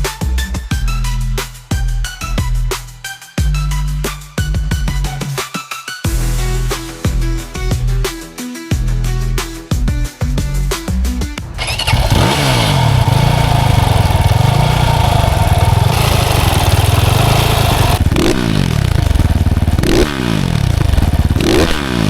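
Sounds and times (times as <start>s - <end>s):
engine revving: 11.6s - 22.0s
motorcycle engine running: 11.6s - 22.0s.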